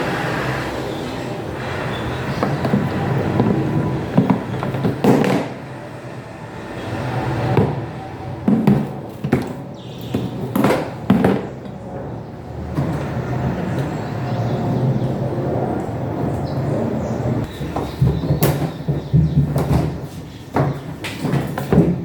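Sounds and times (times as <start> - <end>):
knocks and clatters: 1.6 - 5.8, 7.5 - 12.1, 17.4 - 22.0.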